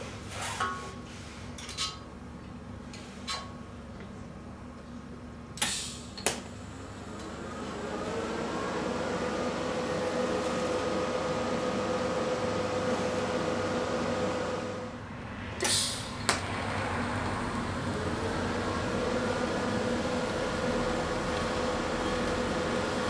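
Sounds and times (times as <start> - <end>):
welding arc humming: 15.6 - 23.0.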